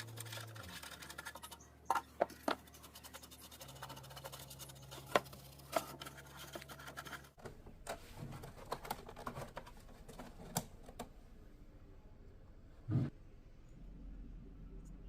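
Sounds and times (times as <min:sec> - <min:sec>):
hands clicking and scratching parts: 0:00.0 - 0:11.0.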